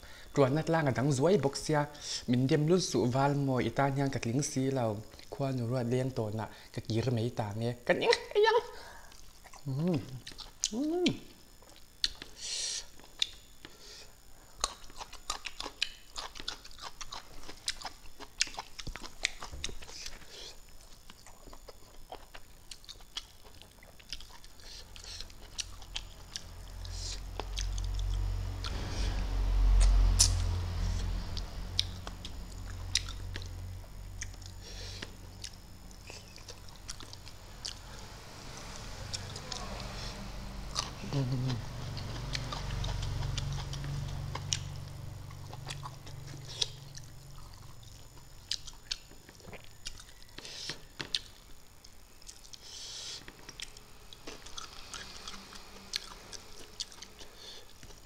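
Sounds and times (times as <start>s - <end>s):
chewing and lip-smacking: 9.1s - 10.8s, 11.6s - 13.4s, 14.6s - 28.8s, 30.2s - 37.8s, 40.7s - 51.4s, 52.2s - 58.0s
low rumble: 26.6s - 48.0s.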